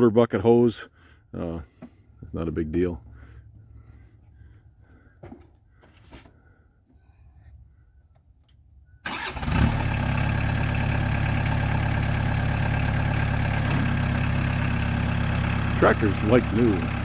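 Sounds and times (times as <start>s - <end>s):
tractor diesel engine starting: 8.9s - 17.0s.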